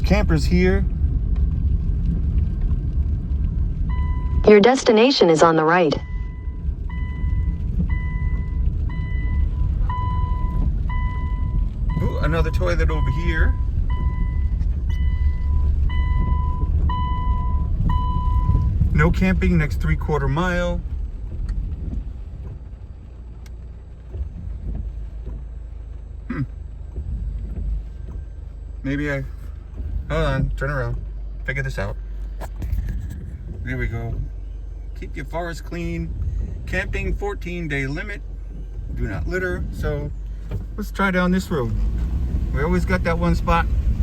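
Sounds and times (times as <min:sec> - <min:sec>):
car rumble: 0:00.0 - 0:44.0
car warning chime beeping: 0:03.9 - 0:20.6, 0:33.6 - 0:41.6
light bumps: 0:06.1 - 0:44.0.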